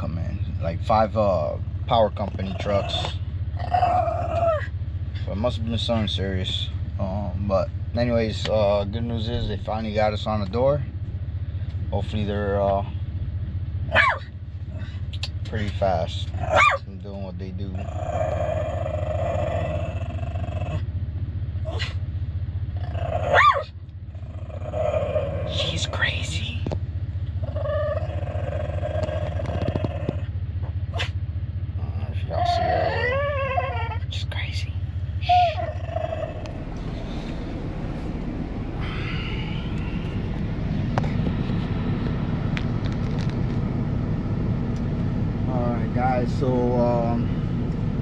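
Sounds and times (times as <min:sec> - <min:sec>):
diesel engine idling: 0:00.0 - 0:48.0
steady low rumble: 0:00.0 - 0:48.0
dog whining: 0:02.4 - 0:04.8, 0:13.9 - 0:14.3, 0:16.4 - 0:16.8, 0:17.8 - 0:20.9, 0:21.6 - 0:22.0, 0:22.8 - 0:26.0, 0:27.4 - 0:30.3, 0:30.9 - 0:31.2, 0:32.3 - 0:34.2, 0:35.2 - 0:36.6
dog yelping: 0:02.4 - 0:04.8, 0:13.9 - 0:14.3, 0:16.4 - 0:16.8, 0:17.8 - 0:20.8, 0:22.8 - 0:25.8, 0:27.4 - 0:30.3, 0:30.9 - 0:31.2, 0:32.3 - 0:34.1, 0:35.2 - 0:36.6
steady hum: 0:34.1 - 0:48.0.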